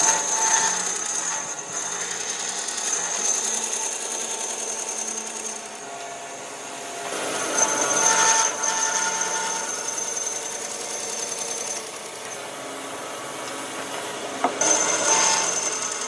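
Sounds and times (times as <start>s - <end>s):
power tool high whine: 0.0s - 16.0s.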